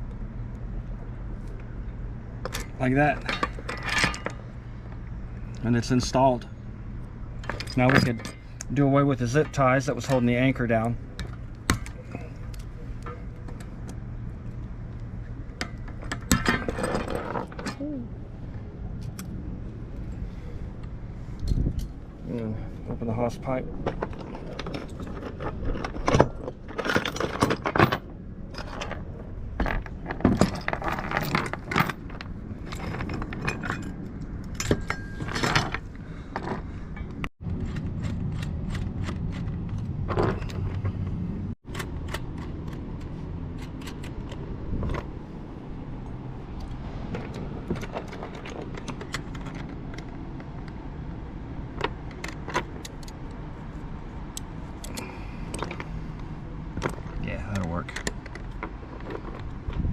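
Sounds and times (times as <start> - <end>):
metal chain clinking and scraping: 2.4 - 4.8, 7.4 - 13.9, 14.6 - 18.0, 19.9 - 41.1, 46.0 - 50.3.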